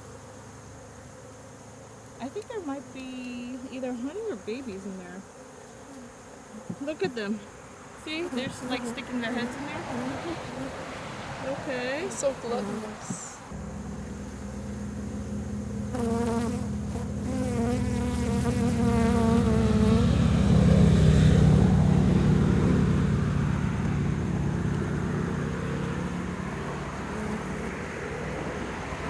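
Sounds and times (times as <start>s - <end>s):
honey bees buzzing: 0.0s - 29.0s
nearer wavering bee buzz: 0.0s - 29.0s.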